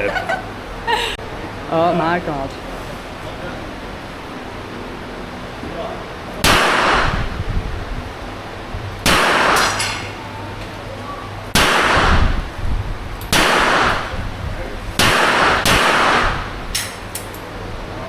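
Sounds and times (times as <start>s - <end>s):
gunshots with ringing echo: 6.4s - 7.3s, 9.0s - 10.1s, 11.6s - 12.4s, 13.3s - 14.1s, 15.0s - 16.6s.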